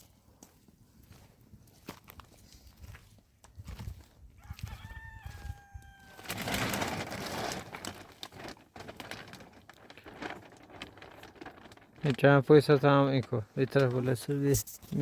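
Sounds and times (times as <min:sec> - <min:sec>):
rustling: 0:05.4 - 0:14.3.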